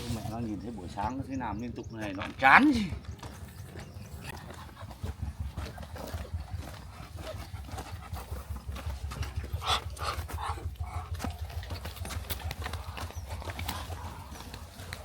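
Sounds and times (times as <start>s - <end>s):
steady low rumble: 0.0s - 15.0s
scattered clicks: 8.7s - 15.0s.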